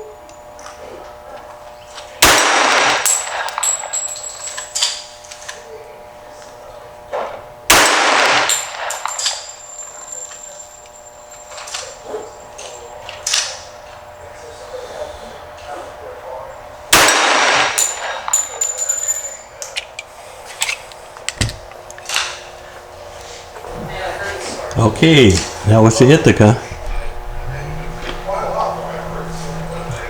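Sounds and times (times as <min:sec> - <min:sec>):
sharp cracks: 0:02.2 - 0:03.7, 0:07.7 - 0:09.6, 0:16.9 - 0:18.6
pistol shots: 0:02.2 - 0:03.8, 0:07.7 - 0:09.8, 0:16.9 - 0:18.7
thin high ringing: 0:03.0 - 0:05.2, 0:08.5 - 0:13.8, 0:16.5 - 0:20.6.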